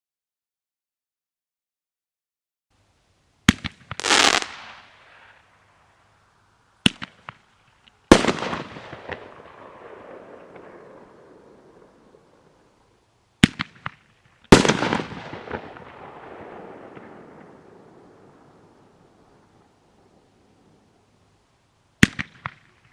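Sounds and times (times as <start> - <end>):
firework launch crack: 3.4 - 5.6, 6.8 - 7.5, 8.1 - 12.7, 13.4 - 19.4
firework burst: 3.5 - 5.5, 13.4 - 19.6
firework crackling: 3.5 - 12.8, 13.4 - 20.2.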